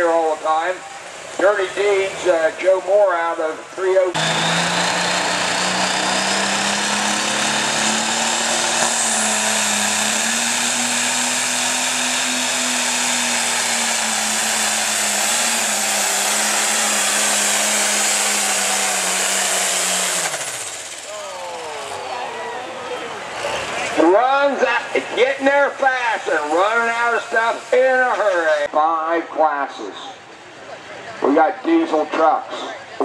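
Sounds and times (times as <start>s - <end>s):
diesel engine at full throttle: 3.9s - 28.8s.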